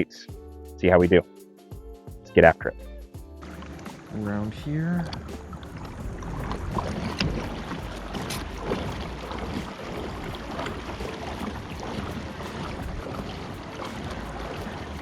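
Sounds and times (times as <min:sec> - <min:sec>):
water splashing along kayak hull: 0:03.4 - 0:15.0.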